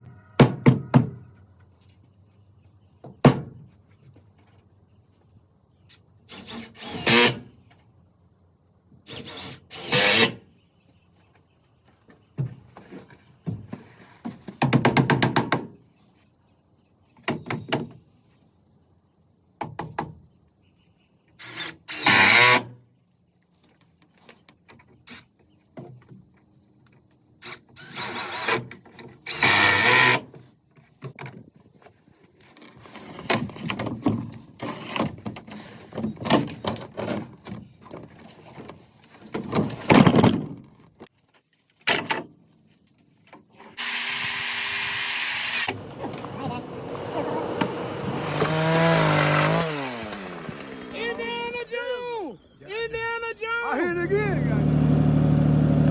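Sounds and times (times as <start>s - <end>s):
woodworking tools on wood: 6.3s - 7.4s, 9.1s - 10.3s, 27.4s - 30.4s, 43.5s - 51.6s.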